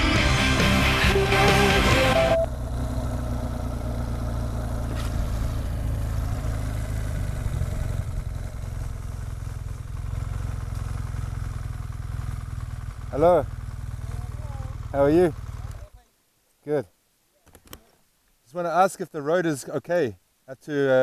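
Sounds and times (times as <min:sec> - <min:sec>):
rock music: 0:00.0 - 0:02.5
motorcycle engine running: 0:00.0 - 0:16.0.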